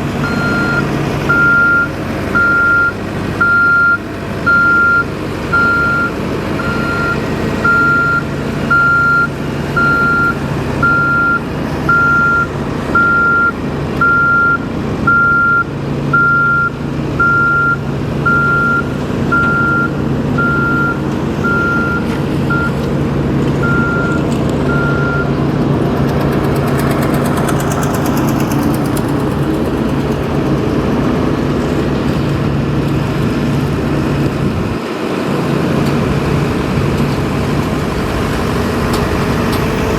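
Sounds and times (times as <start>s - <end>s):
diesel engine running: 0.0s - 39.9s
reversing alarm beeping: 0.2s - 22.8s, 23.6s - 25.4s.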